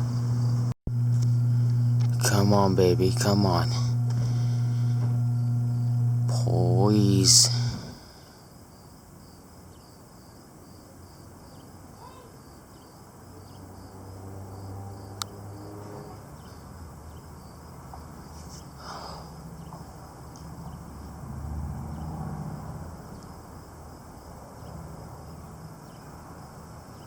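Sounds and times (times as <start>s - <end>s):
low steady rumble: 0.0s - 8.2s
crickets chirping: 0.0s - 27.0s.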